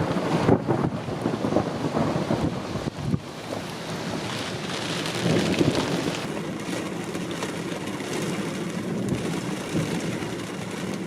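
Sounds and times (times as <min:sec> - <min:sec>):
wind noise: 0:00.0 - 0:06.8
thunder rumbling: 0:00.0 - 0:10.9
steady rain: 0:00.0 - 0:11.0.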